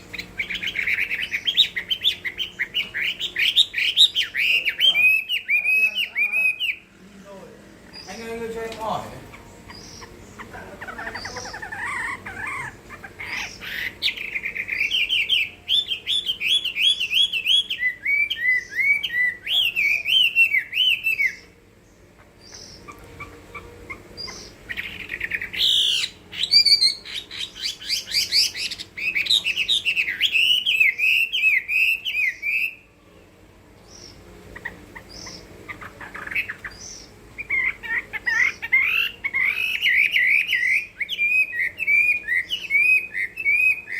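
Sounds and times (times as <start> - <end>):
bird singing warbling whistles: 13.4 - 21.5, 36.1 - 43.9.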